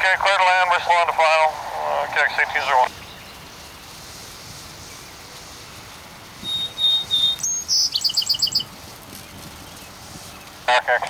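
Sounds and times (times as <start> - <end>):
faint steady hiss: 0.0 - 11.0
songbird singing: 2.8 - 10.7.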